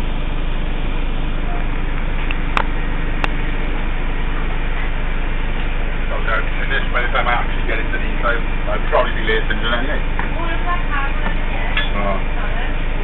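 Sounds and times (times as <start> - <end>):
bus engine humming: 9.4 - 12.7.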